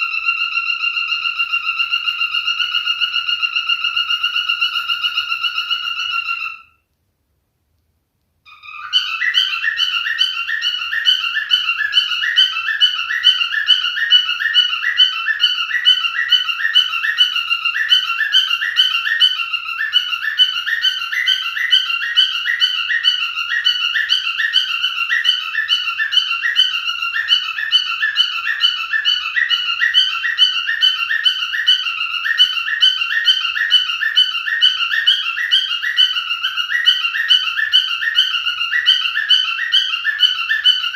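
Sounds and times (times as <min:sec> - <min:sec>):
cockatiel whistling: 0:08.5 - 0:40.9.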